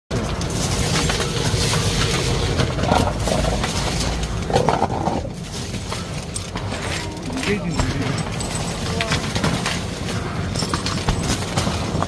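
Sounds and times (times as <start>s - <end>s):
debris rattling through vacuum: 0.1s - 12.0s
street vacuum cleaner roaring: 0.1s - 12.0s.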